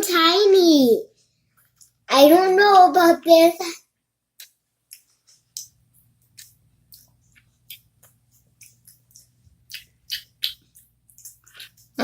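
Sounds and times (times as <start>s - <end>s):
chewing with wet mouth smacks: 4.4s - 12.0s.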